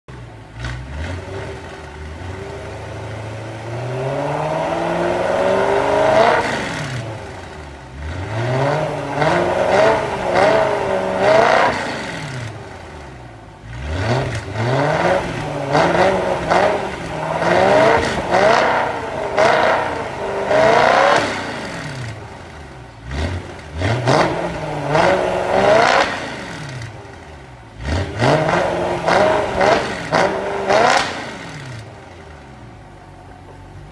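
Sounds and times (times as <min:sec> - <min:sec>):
car engine revving: 0:00.1 - 0:33.0.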